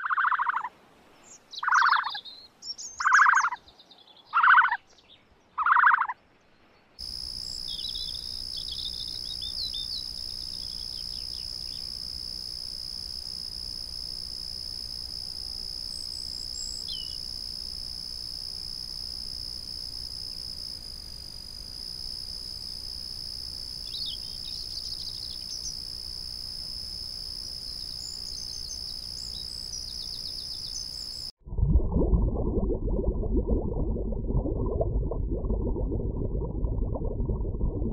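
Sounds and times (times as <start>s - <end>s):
faint chirps: 0.0s - 5.0s, 7.0s - 13.3s, 15.2s - 18.6s, 23.7s - 31.3s
high-pitched insect chorus: 7.0s - 31.3s.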